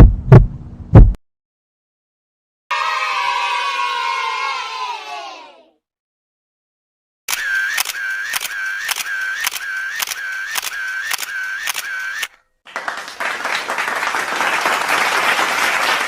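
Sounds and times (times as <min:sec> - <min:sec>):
camera shutter clicks with whine: 0:07.3 - 0:12.4
applause-like noise: 0:12.6 - 0:16.0.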